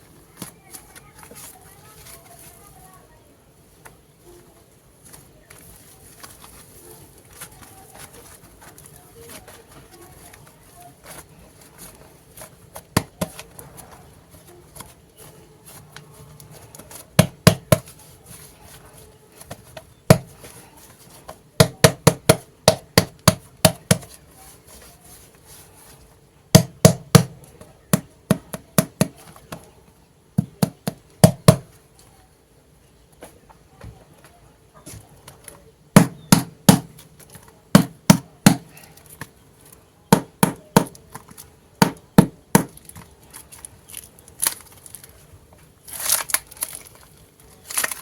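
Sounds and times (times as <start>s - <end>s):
sharp taps on a hard surface: 17.2s - 17.9s, 20.1s - 20.4s, 21.3s - 24.2s, 26.6s - 29.7s, 36.0s - 37.0s, 37.8s - 39.3s, 40.1s - 41.0s.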